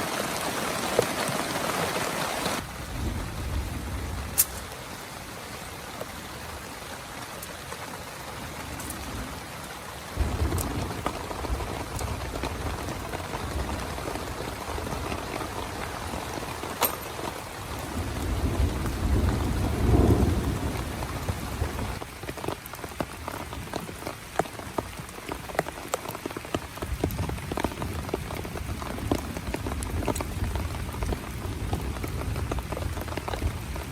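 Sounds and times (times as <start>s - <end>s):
heavy rain falling: 0.0s - 33.9s
large raindrops hitting: 0.0s - 33.9s
thunder rumbling: 2.4s - 6.7s, 8.3s - 22.0s, 26.9s - 33.9s.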